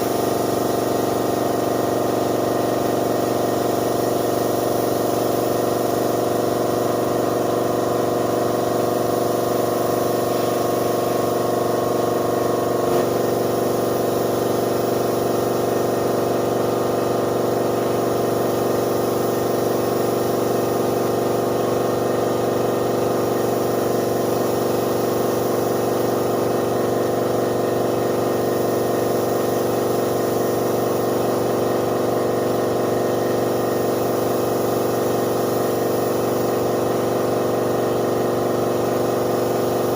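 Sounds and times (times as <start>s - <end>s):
air compressor motor humming: 0.0s - 39.9s.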